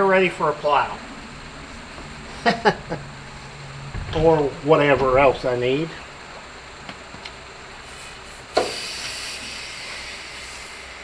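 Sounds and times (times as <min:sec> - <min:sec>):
compressed air hissing: 0:07.8 - 0:11.0.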